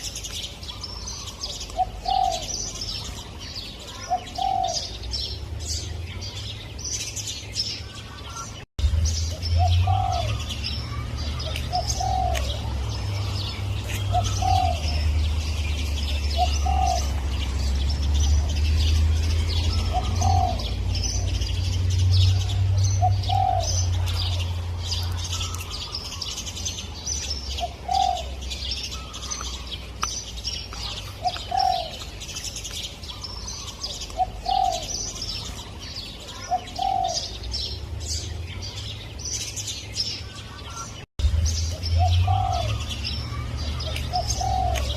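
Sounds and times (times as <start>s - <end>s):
small birds chirping: 0.0s - 44.9s
dove cooing: 0.7s - 5.1s, 9.6s - 17.8s, 18.4s - 21.4s, 22.3s - 26.0s, 27.5s - 29.6s, 30.8s - 32.1s, 33.1s - 35.5s, 36.2s - 37.4s, 42.0s - 44.9s.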